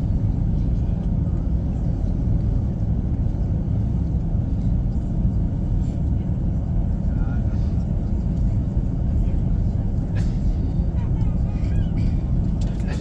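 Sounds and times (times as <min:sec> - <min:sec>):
aircraft cabin rumble: 0:00.0 - 0:13.0.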